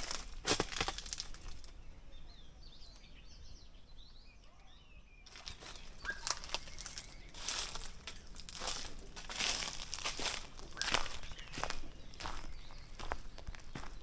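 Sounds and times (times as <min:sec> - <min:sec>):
footsteps crunching on dry leaves: 0:00.0 - 0:01.7, 0:05.3 - 0:14.0
faint bird chirps: 0:01.5 - 0:14.0.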